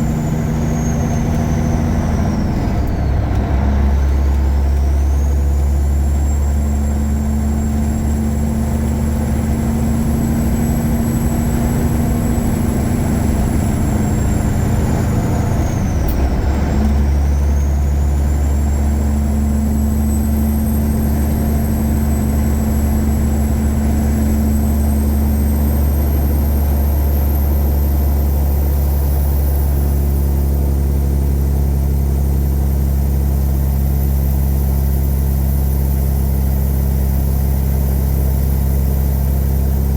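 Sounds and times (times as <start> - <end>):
truck diesel engine drone: 0.0 - 39.9
high turbo whistle: 9.8 - 20.4.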